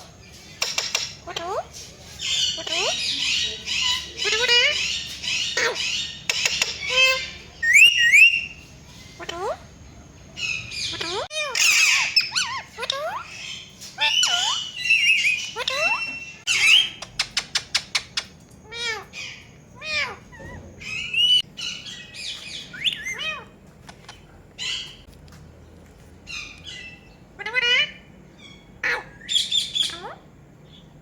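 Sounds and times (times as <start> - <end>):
parrot squawking: 0.6 - 9.6, 10.4 - 25.1, 26.3 - 30.2
sharp clicks: 17.0 - 18.6.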